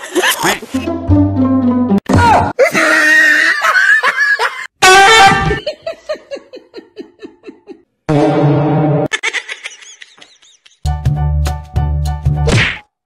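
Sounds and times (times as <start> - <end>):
person laughing: 5.4 - 7.9, 9.1 - 10.8.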